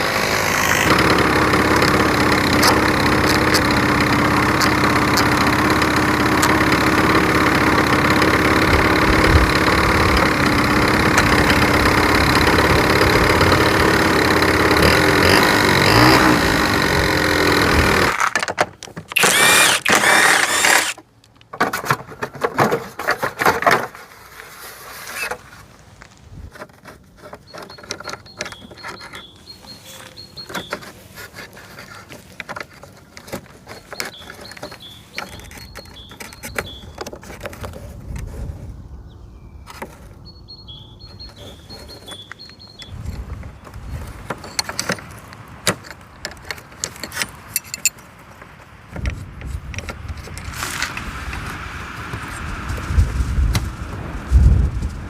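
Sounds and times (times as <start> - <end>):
scooter engine running: 0.0 - 18.2, 19.1 - 21.0.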